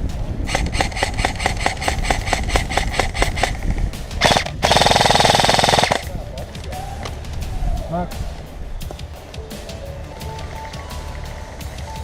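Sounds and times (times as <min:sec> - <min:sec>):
airsoft guns firing: 0:00.5 - 0:06.1.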